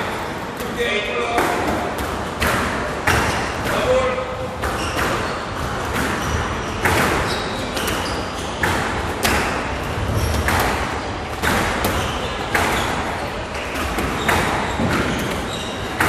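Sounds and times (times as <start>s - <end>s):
squash ball hits: 0.5s - 16.0s
shoe squeaks: 4.6s - 9.0s, 9.9s - 16.0s.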